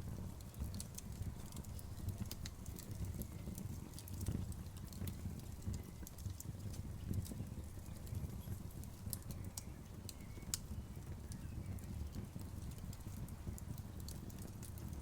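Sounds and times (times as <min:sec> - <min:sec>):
bonfire crackling and popping: 0:00.0 - 0:15.0
low rumble of burning: 0:00.0 - 0:15.0.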